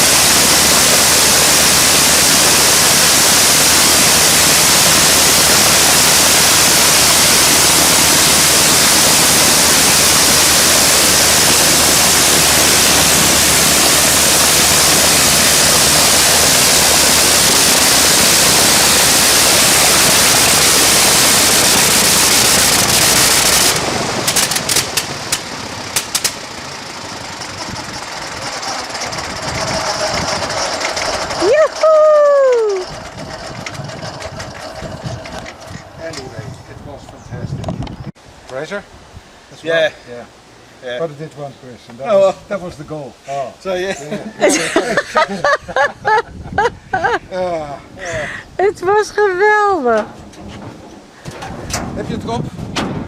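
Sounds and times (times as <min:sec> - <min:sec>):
rotary aero engine running: 0:00.0 - 0:38.2.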